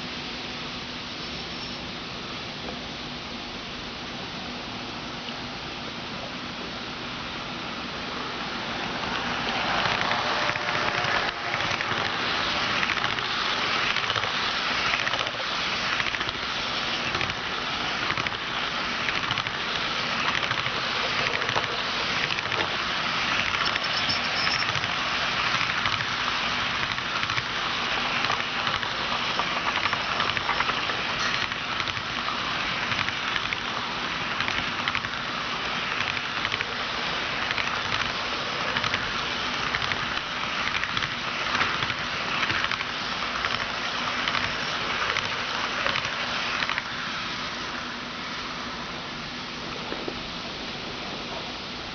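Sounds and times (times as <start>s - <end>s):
model train wheels rattling on rails: 7.9s - 49.0s.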